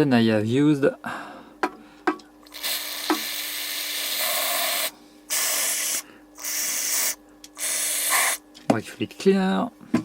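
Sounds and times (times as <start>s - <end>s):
pressurised spray hissing: 2.5s - 8.4s.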